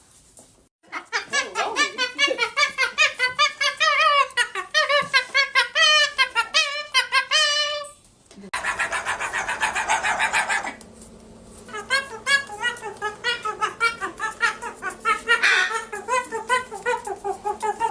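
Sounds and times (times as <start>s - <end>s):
parrot laugh-like calls: 0.9s - 8.0s, 8.6s - 10.8s, 11.7s - 17.9s.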